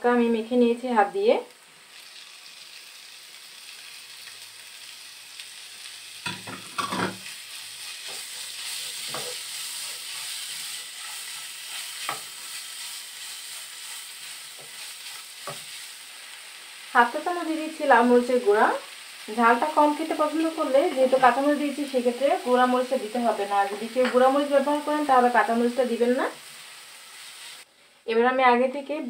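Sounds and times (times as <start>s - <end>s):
shrimp sizzling in pan: 0.2s - 28.1s
spatula scraping and knocking pan: 6.3s - 7.3s, 8.0s - 12.4s.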